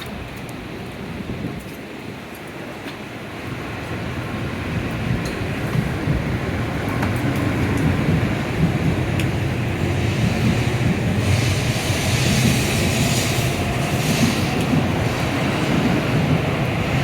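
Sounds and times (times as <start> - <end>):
train rumble: 0.0 - 17.0
hiss of rushing air: 7.8 - 17.0.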